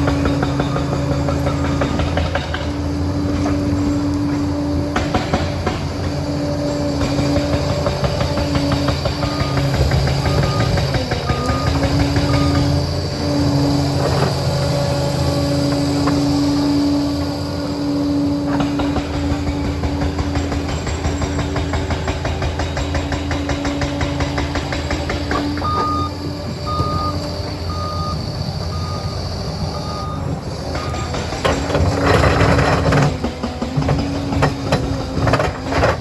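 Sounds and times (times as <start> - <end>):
dozer diesel engine running: 0.0 - 36.0
reversing alarm beeps: 9.2 - 12.8, 25.6 - 31.3.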